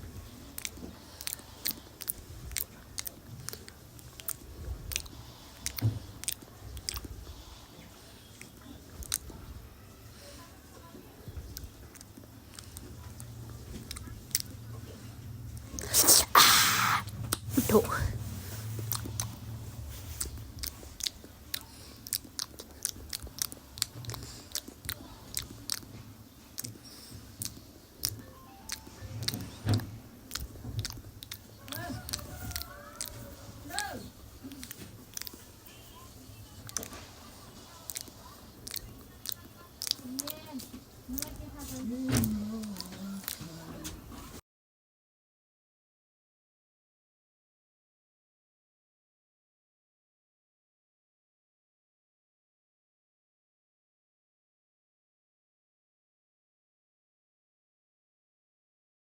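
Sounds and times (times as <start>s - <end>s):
chewing food with mouth smacks: 0.2s - 7.4s, 18.8s - 19.4s, 20.0s - 29.4s, 30.2s - 33.2s, 34.4s - 35.5s, 36.6s - 41.4s.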